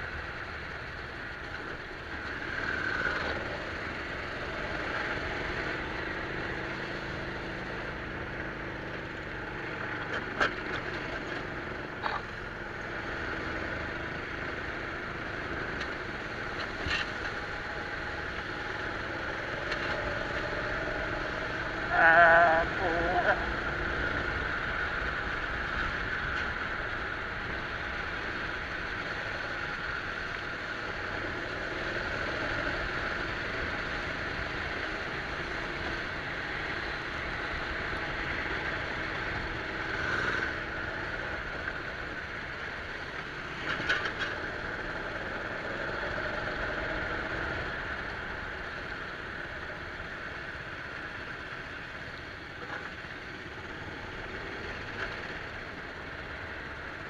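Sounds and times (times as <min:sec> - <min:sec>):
go-kart engine running: 0:00.0 - 0:57.0.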